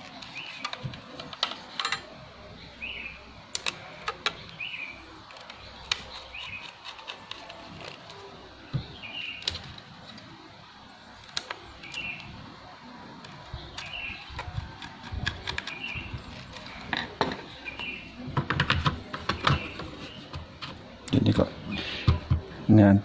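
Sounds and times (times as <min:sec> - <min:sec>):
bird chirping: 0:02.4 - 0:10.2, 0:10.8 - 0:18.3, 0:19.0 - 0:20.5.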